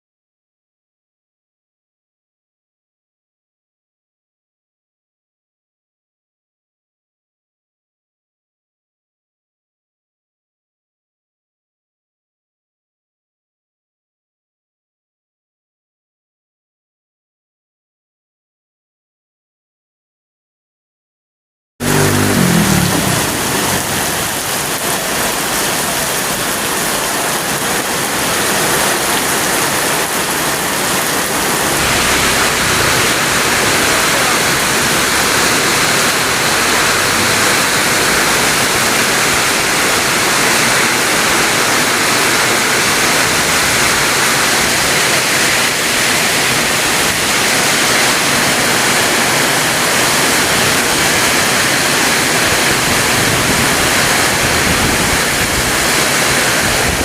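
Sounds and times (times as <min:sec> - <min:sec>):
heavy rain pouring: 0:21.8 - 0:57.0.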